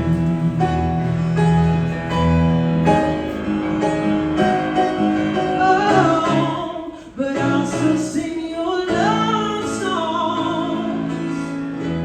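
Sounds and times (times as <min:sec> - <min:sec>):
held bass notes: 0:00.0 - 0:06.6
keyboard chords: 0:00.0 - 0:08.0.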